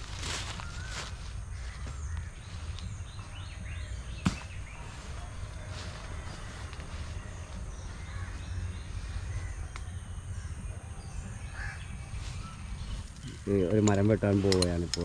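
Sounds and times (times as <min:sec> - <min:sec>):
steady low rumble: 0:00.0 - 0:14.4
crows cawing: 0:05.7 - 0:10.6, 0:11.4 - 0:12.3.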